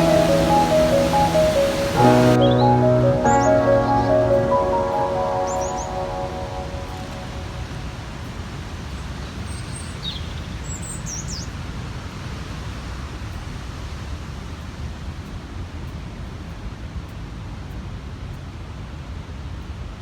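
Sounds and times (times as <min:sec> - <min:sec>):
high bird chirps: 0:00.0 - 0:07.8.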